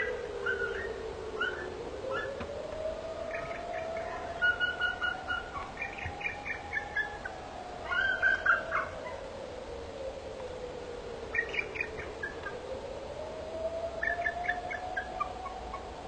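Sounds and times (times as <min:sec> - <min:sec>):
birds calling: 0:00.0 - 0:09.2, 0:11.3 - 0:12.6.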